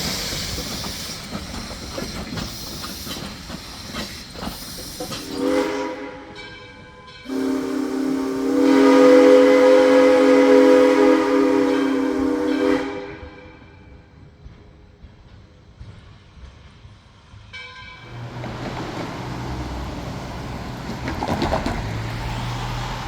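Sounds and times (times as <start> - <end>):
steam hissing: 0.0 - 6.1
steam locomotive whistle: 5.0 - 13.9.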